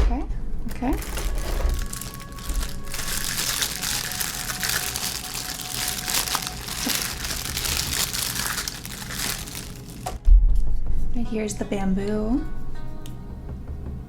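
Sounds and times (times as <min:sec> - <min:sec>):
packaging crinkling: 0:00.7 - 0:10.2.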